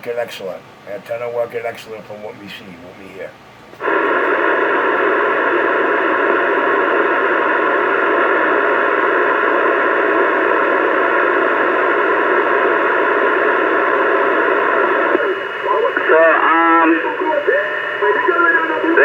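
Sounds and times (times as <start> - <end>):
radio static hiss: 0.0 - 19.0
voice over radio: 5.0 - 19.0.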